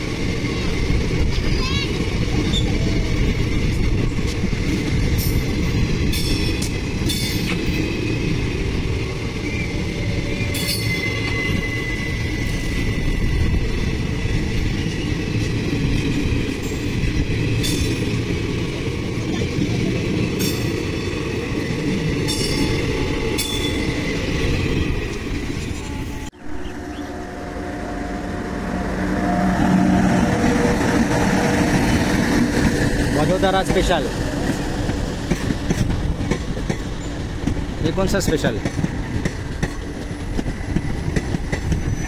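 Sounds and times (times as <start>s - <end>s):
train wheels rumbling on track: 0.0s - 42.0s
thin high squeal: 10.2s - 12.9s
sharp clicks from wheels: 33.6s - 42.0s.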